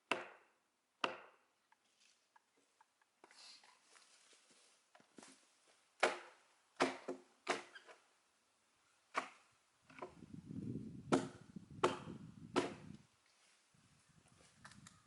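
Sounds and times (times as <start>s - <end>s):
splitting tool striking log: 11.1s - 12.8s.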